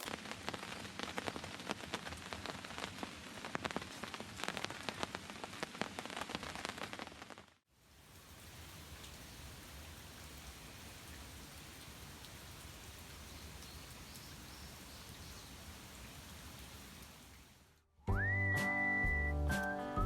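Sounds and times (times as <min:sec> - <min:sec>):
steady rain hiss: 0:00.0 - 0:17.9
rain drop ticks: 0:07.9 - 0:17.8.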